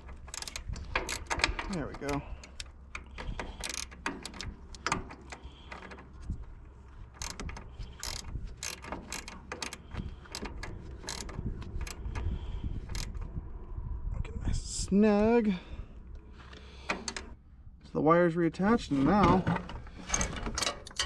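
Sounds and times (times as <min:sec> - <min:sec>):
ratcheting wrench clicking: 0:00.0 - 0:06.0, 0:07.1 - 0:13.2.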